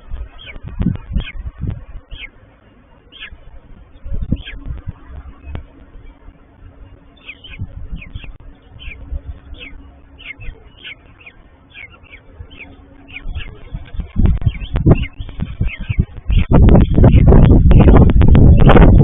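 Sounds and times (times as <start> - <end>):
falcon chicks cheeping: 0.0 - 19.0
wind buffeting microphone: 0.0 - 19.0.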